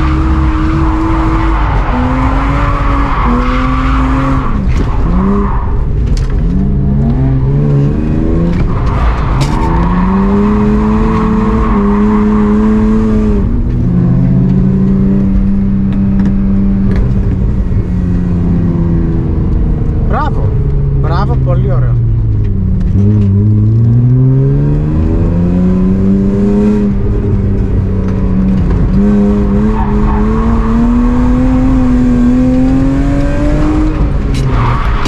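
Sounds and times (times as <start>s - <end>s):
car engine revving hard: 6.6s - 16.9s, 23.0s - 27.2s, 28.3s - 34.6s.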